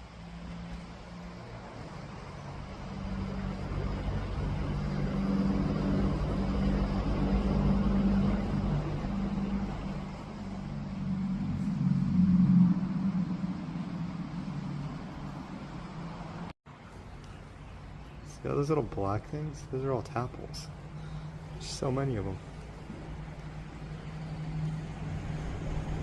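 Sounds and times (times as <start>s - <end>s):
vehicle engine hum: 0.0s - 26.0s.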